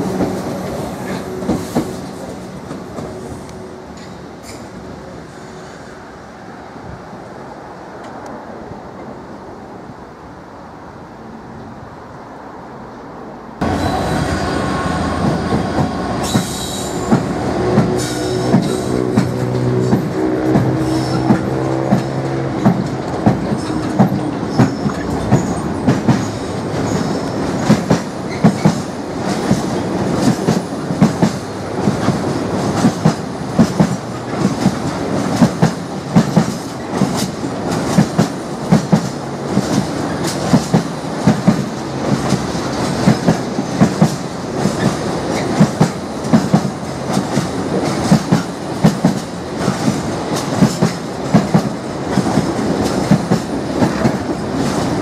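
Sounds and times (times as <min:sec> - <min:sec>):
freight train rumbling past: 0:00.0 - 0:55.0
wheels clacking over rail joints: 0:15.2 - 0:55.0.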